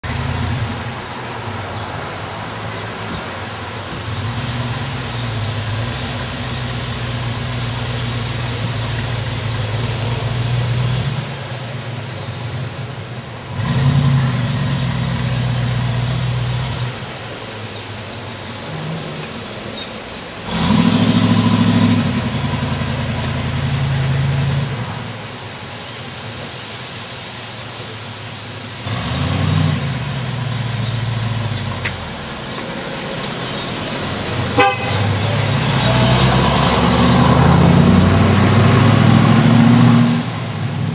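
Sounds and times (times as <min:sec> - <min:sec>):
car engine idling and revving: 0:00.0 - 0:40.9
faint birds chirping: 0:29.8 - 0:36.1.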